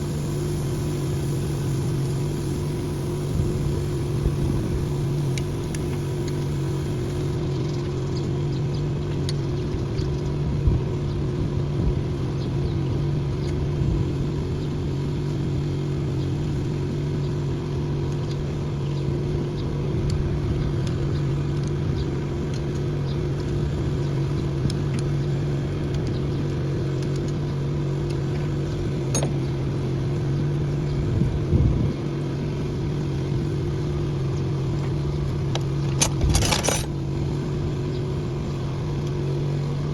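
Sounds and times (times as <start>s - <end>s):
engine running steadily: 0.0s - 39.9s
metallic clicks: 35.5s - 37.0s.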